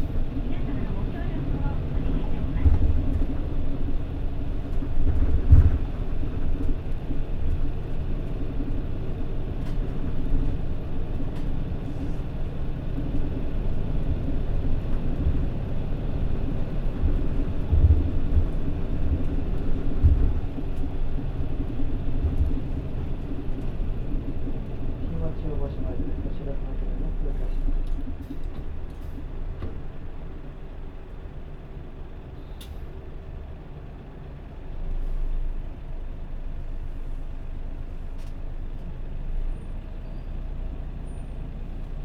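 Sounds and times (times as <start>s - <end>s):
bus diesel engine drone: 0.0s - 42.0s
road rumble: 0.0s - 42.0s.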